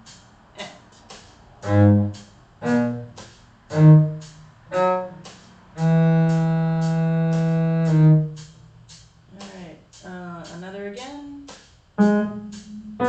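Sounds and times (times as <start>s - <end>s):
steady ticking: 0.0s - 13.0s
cello playing slow notes: 1.6s - 9.0s, 12.0s - 13.0s.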